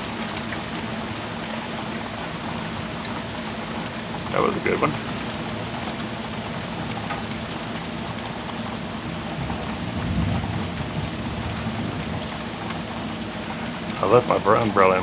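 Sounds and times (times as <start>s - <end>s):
rain splashing on surfaces: 0.0s - 15.0s
distant thunder rumble: 9.3s - 13.0s.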